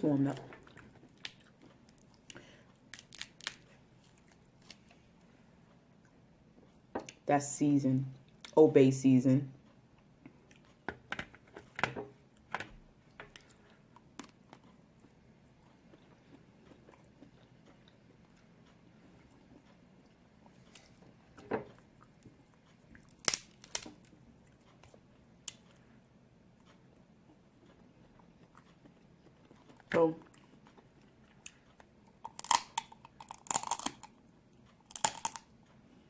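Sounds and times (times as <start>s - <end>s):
soft chewing: 0.1s - 7.2s, 8.1s - 8.6s, 9.6s - 36.0s
person crunching food: 0.5s - 5.0s, 22.9s - 24.2s, 28.1s - 34.2s, 34.8s - 35.5s.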